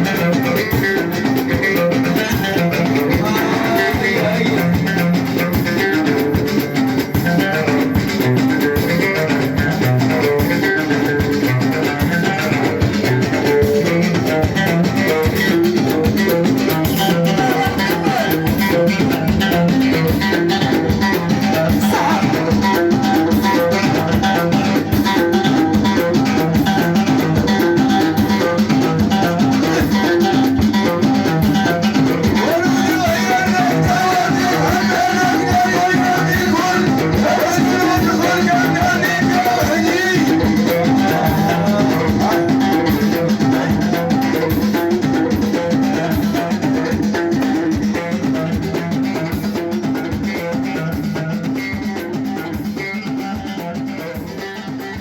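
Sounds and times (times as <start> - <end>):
steady drum beat: 0.0 - 55.0.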